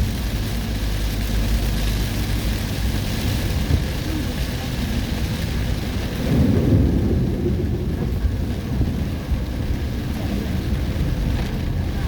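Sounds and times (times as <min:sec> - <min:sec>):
heavy rain: 0:00.0 - 0:12.0
thunder rumbling: 0:03.4 - 0:12.0.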